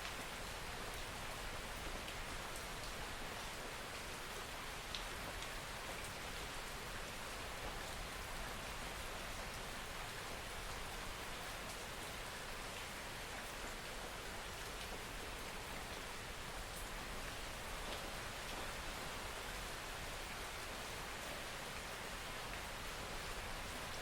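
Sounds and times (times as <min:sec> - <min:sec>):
steady rain hiss: 0:00.0 - 0:24.0
faint raindrop ticks: 0:01.8 - 0:06.3.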